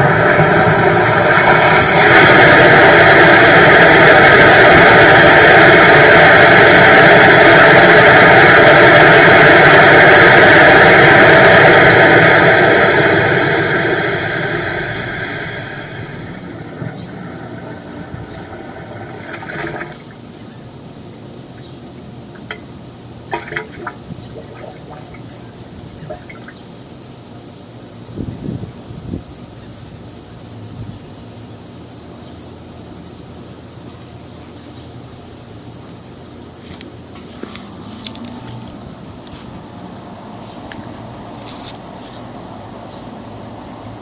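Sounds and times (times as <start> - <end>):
sewer jetter running: 0.0 - 26.5, 35.6 - 44.0.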